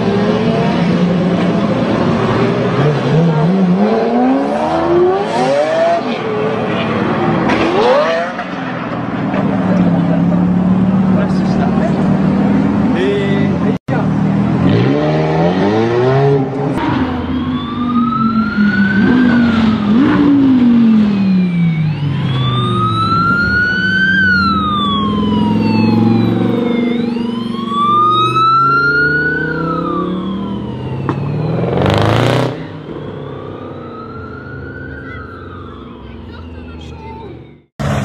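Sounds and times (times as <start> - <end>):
sports car engines revving: 0.0 - 38.0
siren wailing: 16.7 - 37.7.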